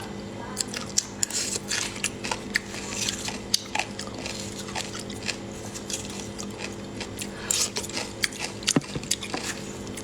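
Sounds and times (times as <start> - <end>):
person chewing crunchy food: 0.7 - 10.0.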